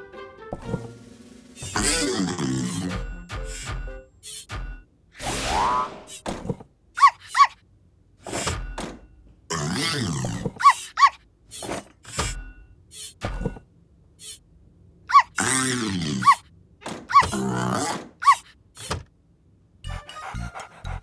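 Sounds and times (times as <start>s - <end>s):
cartoon thunks and knocks: 0.5s - 1.0s, 2.7s - 4.8s, 6.2s - 6.7s, 8.3s - 9.1s, 13.2s - 13.6s, 16.8s - 19.1s.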